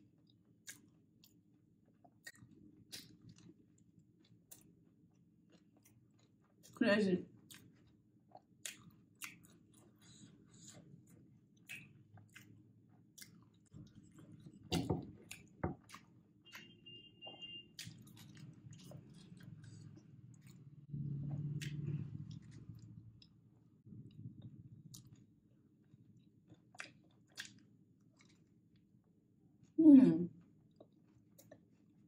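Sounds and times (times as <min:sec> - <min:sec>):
chewing with wet mouth clicks: 0:00.2 - 0:06.8, 0:07.4 - 0:23.4, 0:24.0 - 0:28.9, 0:30.6 - 0:31.8
low hum: 0:18.1 - 0:26.4.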